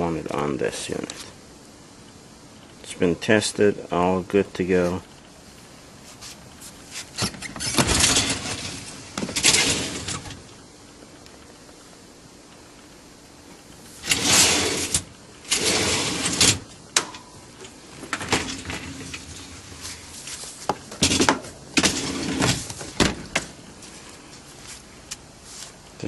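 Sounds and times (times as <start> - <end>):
dishwasher racks scraping and sliding: 7.1 - 10.4, 14.0 - 16.6, 18.1 - 20.0, 21.0 - 23.3.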